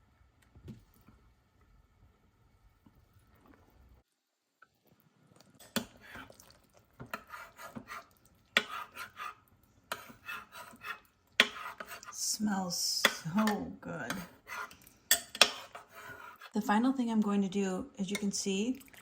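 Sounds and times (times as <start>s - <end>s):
spoon scraping a pot: 5.6s - 16.6s.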